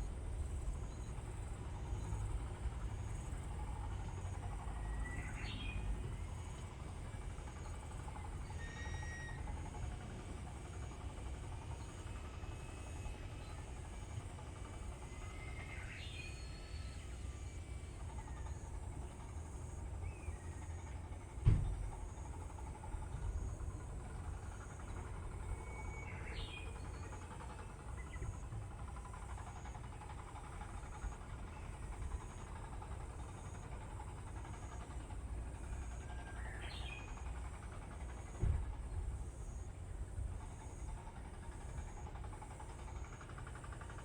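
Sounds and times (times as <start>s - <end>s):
dull thump: 21.4s - 21.8s.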